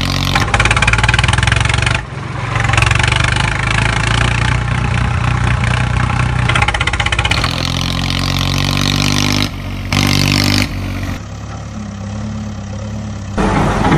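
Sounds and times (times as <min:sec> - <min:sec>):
heavy vehicle engine revving: 0:00.0 - 0:13.9.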